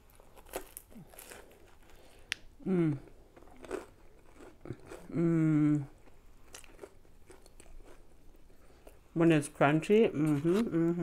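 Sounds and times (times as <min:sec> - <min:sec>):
chewing crunchy fried food: 0:00.0 - 0:02.5, 0:03.1 - 0:05.2, 0:05.8 - 0:09.1.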